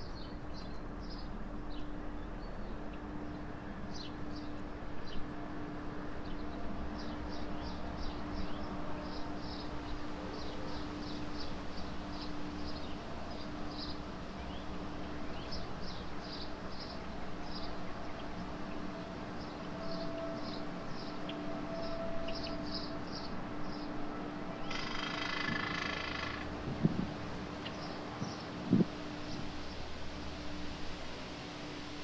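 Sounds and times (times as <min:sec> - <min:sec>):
steady low hum: 0:00.0 - 0:32.0
small birds chirping: 0:24.6 - 0:27.0.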